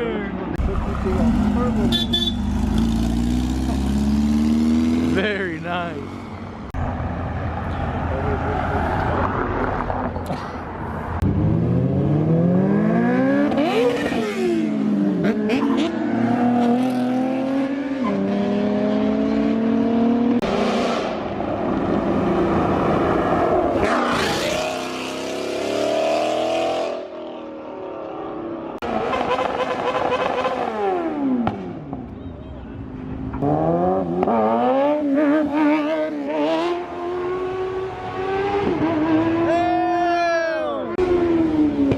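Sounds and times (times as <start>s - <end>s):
sports cars accelerating hard: 11.2s - 27.5s, 33.4s - 39.7s.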